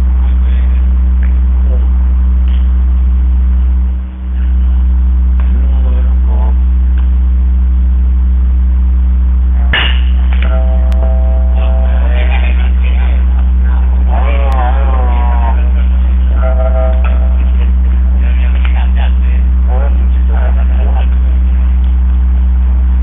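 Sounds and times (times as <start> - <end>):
loud low electrical hum: 0.0 - 23.0
sharp knock: 9.7 - 10.5.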